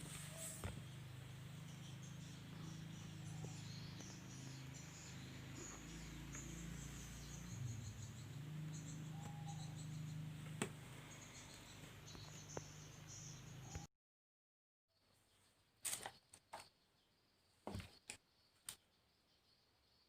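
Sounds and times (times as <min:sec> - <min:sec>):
faint high chirping: 0:00.0 - 0:13.9.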